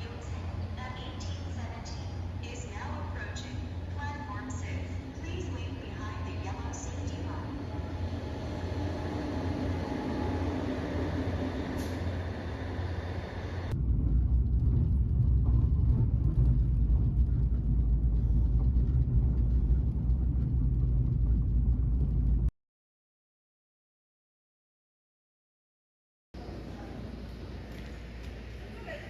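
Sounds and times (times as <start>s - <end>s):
deep rumble: 0.0s - 22.5s
moving vehicle running noise: 4.7s - 22.5s.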